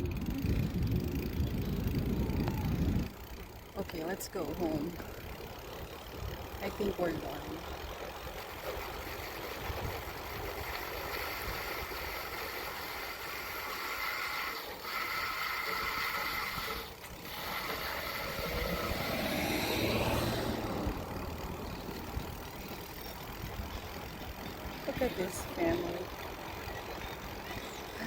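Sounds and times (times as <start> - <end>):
wind rumbling on microphone: 0.0 - 13.6, 15.8 - 28.0
vehicle passing: 17.2 - 28.0.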